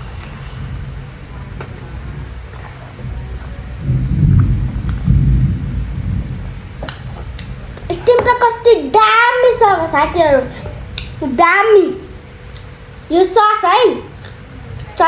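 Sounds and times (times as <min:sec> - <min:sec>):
child chewing food: 0:14.1 - 0:14.5.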